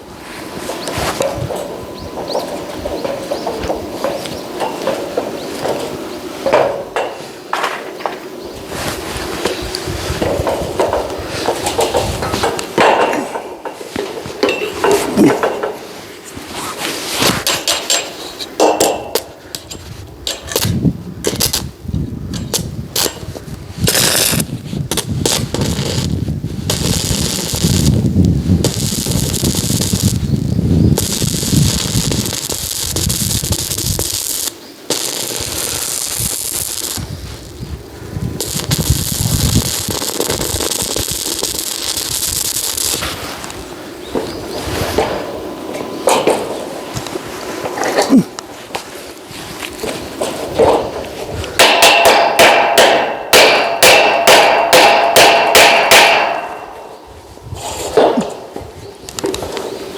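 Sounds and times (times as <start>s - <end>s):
arc welding crackling hiss: 0.0s - 59.9s
hammer striking metal: 17.5s - 19.3s, 51.6s - 57.0s.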